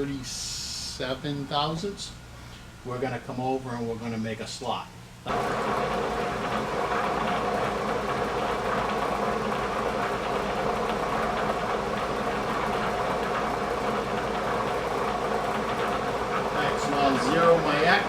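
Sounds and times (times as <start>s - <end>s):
milling machine humming: 5.2s - 18.0s.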